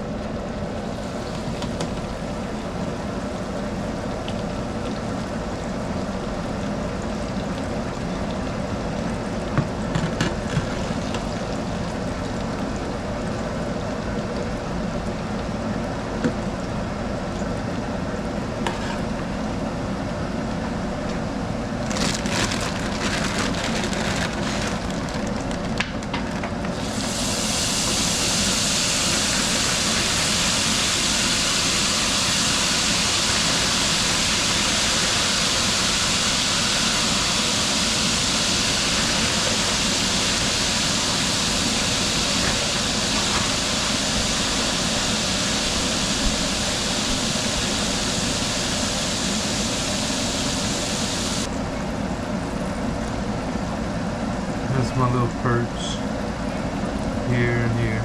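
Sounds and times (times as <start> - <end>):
fish frying in hot grease: 21.7 - 51.5.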